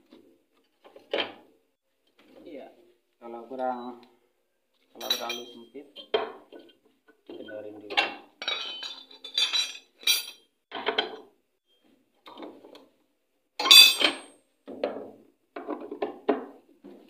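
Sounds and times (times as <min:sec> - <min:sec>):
tools and metal parts clinking: 0:05.0 - 0:06.1, 0:07.4 - 0:11.1, 0:13.6 - 0:14.3.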